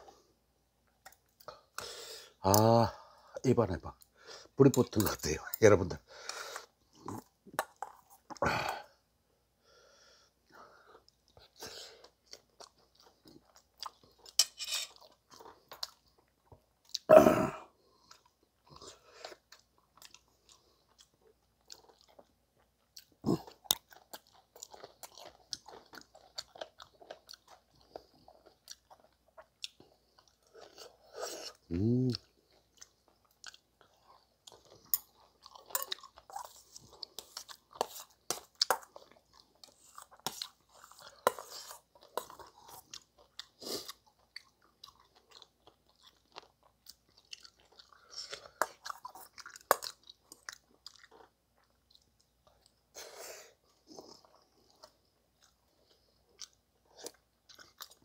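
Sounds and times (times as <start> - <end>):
chewing and crunching food: 10.4 - 17.1, 17.7 - 58.0
person humming: 31.7 - 32.2.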